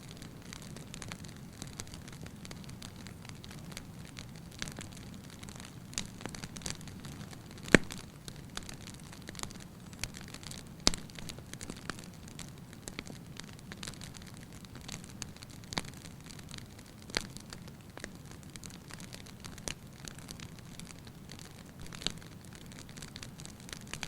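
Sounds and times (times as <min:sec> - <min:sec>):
wood fire hissing and crackling: 0:00.0 - 0:24.0.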